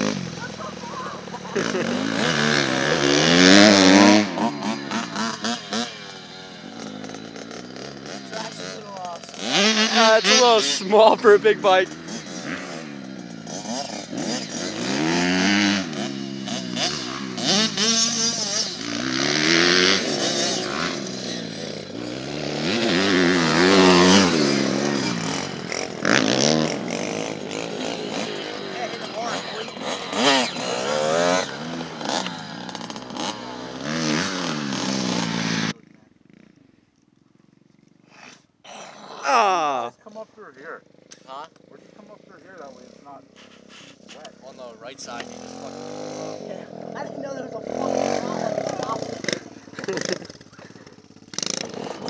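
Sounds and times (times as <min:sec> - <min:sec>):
engine throttle blips: 0:00.0 - 0:36.8
motorbike engine revving: 0:00.0 - 0:52.0.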